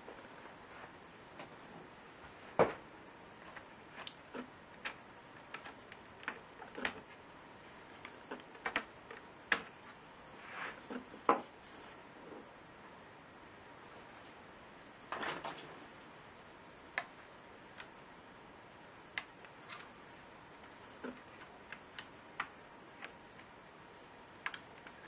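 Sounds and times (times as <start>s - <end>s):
laptop parts clicking: 3.6s - 7.2s.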